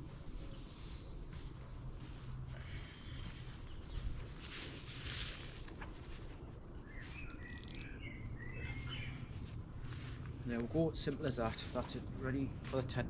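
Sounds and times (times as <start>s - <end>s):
outdoor background noise: 0.0s - 13.0s
bird chirping: 6.8s - 9.6s.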